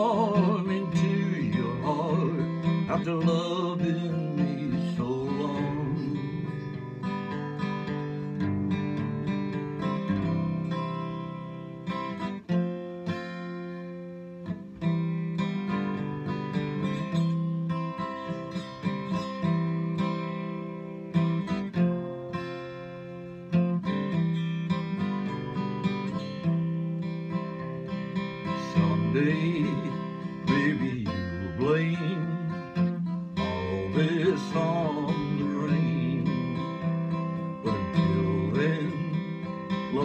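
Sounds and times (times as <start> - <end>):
acoustic guitar strumming chords: 0.0 - 40.0.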